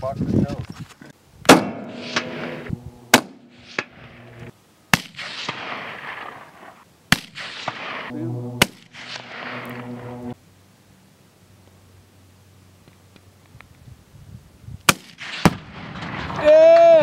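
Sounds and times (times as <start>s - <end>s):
rifle shots with echo: 1.5s - 9.9s, 14.9s - 16.4s.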